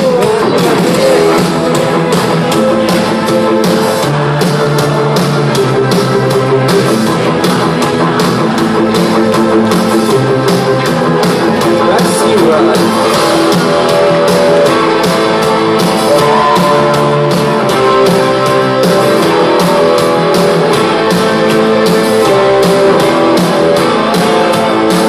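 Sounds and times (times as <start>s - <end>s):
rock band playing: 0.0s - 25.0s.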